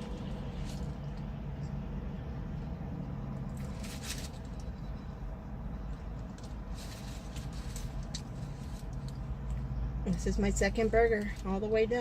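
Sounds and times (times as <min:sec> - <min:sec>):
low car cabin hum: 0:00.0 - 0:12.0.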